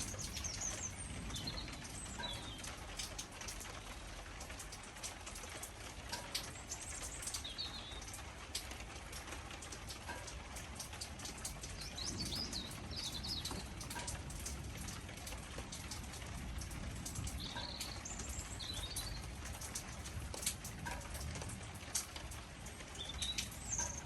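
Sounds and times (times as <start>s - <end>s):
birds chirping: 0.0s - 4.1s, 6.4s - 8.2s, 11.3s - 14.5s, 17.1s - 19.9s, 22.7s - 24.0s
drip clicks: 0.0s - 24.0s
rain pattering: 0.0s - 24.0s.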